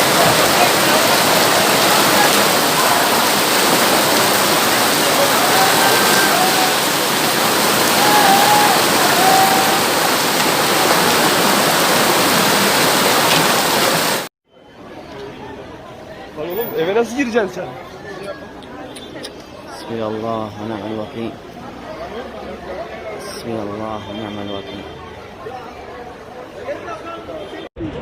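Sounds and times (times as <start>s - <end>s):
torrential rain: 0.0s - 14.3s
wind: 0.0s - 28.0s.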